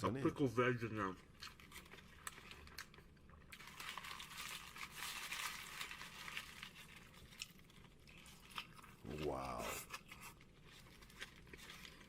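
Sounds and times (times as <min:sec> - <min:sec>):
crinkling crackle: 0:01.4 - 0:12.0
eating sounds: 0:06.8 - 0:12.0.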